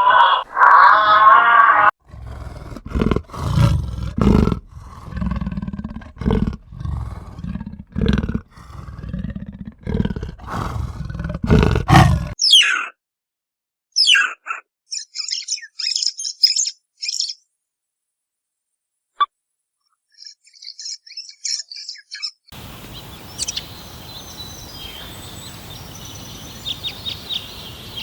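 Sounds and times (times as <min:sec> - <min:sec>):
animal deep rough roars: 0:01.8 - 0:12.4.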